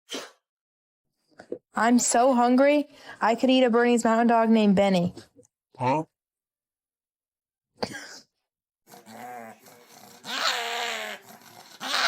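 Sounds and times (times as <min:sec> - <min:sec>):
dog vocalizing: 0:08.9 - 0:12.0.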